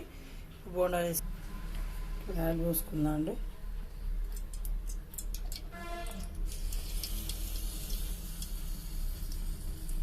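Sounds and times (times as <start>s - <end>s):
oil hissing in a pan: 6.5s - 10.0s.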